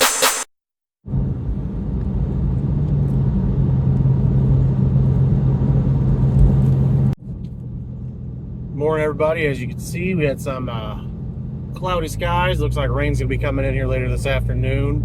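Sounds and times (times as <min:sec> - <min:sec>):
electronic music: 0:00.0 - 0:00.5
road rumble: 0:01.0 - 0:15.0
car engine hum: 0:01.1 - 0:15.0.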